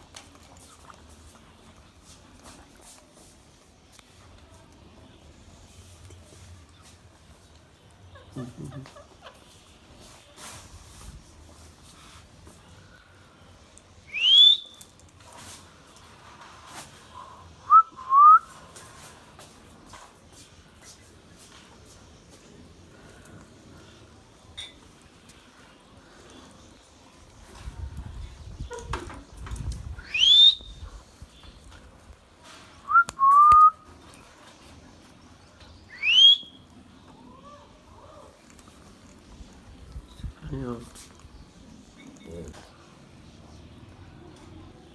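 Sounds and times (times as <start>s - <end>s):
parrot rising whistles: 14.1s - 14.8s, 30.0s - 30.8s, 35.9s - 36.6s.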